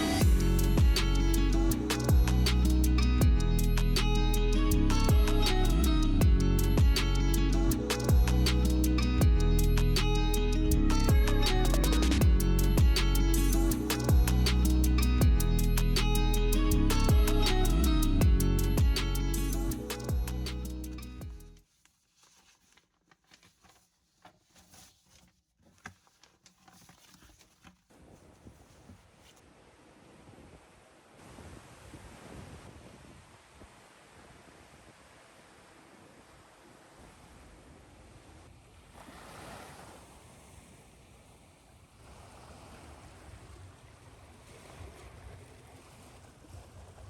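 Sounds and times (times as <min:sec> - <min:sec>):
ocean waves washing in: 0:00.0 - 0:03.2, 0:29.6 - 0:47.0
strummed guitar music: 0:00.0 - 0:21.4.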